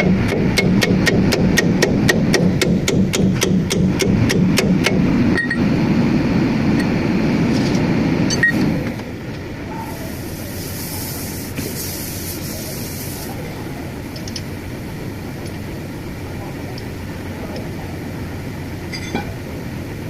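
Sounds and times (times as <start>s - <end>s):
low mechanical rumble: 0.0s - 20.0s
hiss: 9.7s - 13.7s
sharp metal clinks: 18.9s - 19.4s.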